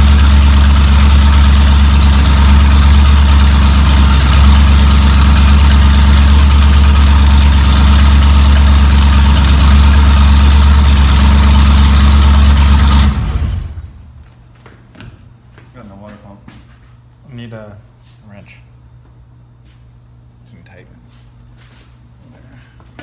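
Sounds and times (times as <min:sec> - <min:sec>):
engine idling: 0:00.0 - 0:14.2.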